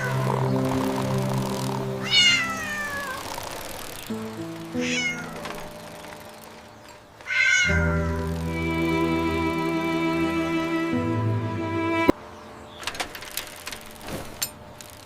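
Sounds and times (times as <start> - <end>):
soft background music: 0.0 - 12.2
cat meowing: 2.0 - 3.2, 4.8 - 5.4, 7.3 - 8.1.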